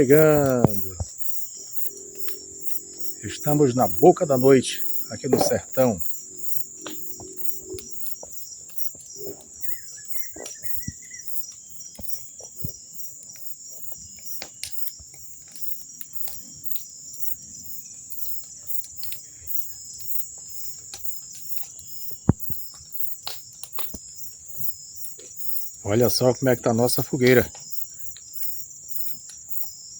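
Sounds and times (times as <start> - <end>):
bonfire crackling and popping: 0.0 - 29.9
crickets chirring: 0.0 - 29.9
high chirping call: 9.6 - 11.3.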